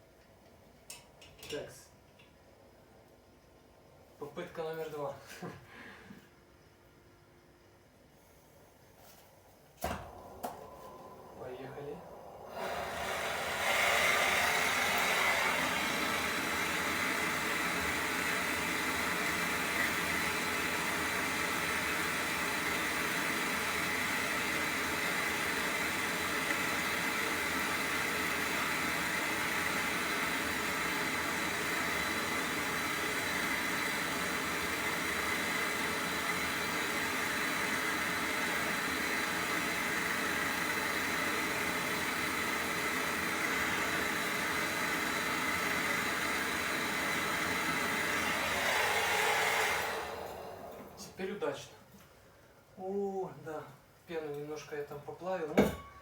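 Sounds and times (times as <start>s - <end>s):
brazing torch hissing: 9.8s - 51.4s.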